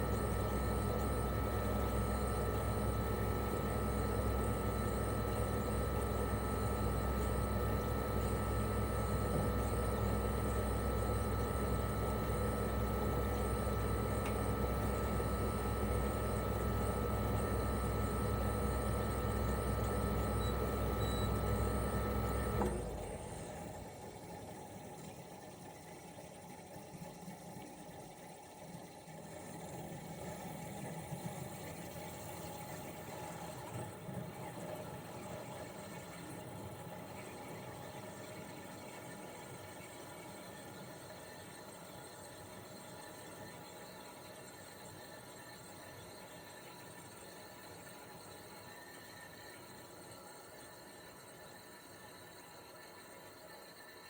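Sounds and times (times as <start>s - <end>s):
air conditioner compressor humming: 0.0s - 24.9s.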